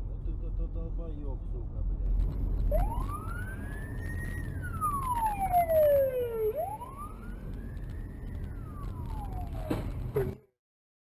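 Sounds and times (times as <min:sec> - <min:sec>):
car engine and road noise: 0:00.0 - 0:10.5
siren wailing: 0:02.6 - 0:10.2.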